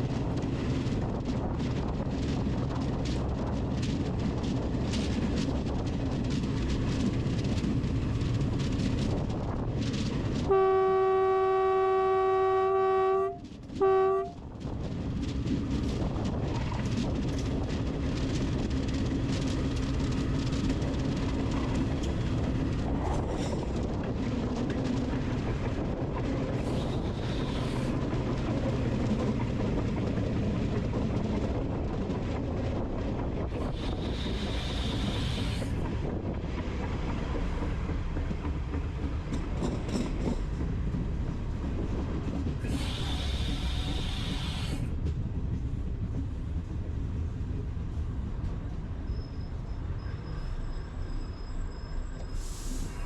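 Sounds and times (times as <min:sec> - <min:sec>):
wheels clickety-clack: 0:00.0 - 0:10.6, 0:13.3 - 0:49.0
train rumbling on rails: 0:00.0 - 0:53.0.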